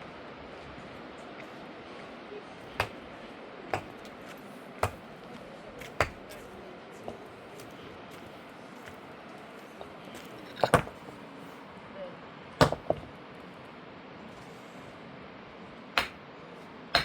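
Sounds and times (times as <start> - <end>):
steady background hiss: 0.0 - 17.0
sharp knocks: 16.0 - 16.2.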